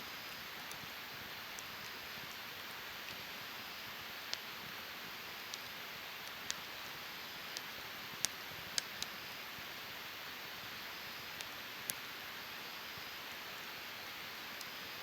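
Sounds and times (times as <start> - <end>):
fire crackling pops: 0.3 - 12.3.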